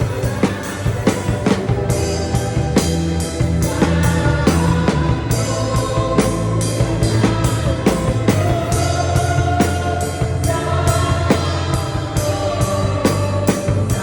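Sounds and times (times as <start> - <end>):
bass: 0.0 - 14.0
chords: 0.0 - 14.0
drum kit playing: 0.0 - 14.0
person singing: 0.0 - 14.0.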